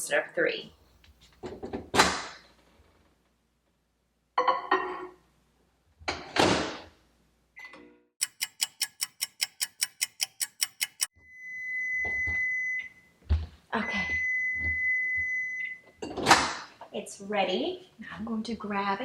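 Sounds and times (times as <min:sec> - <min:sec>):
microwave beep: 0:11.2 - 0:13.2, 0:13.8 - 0:16.0.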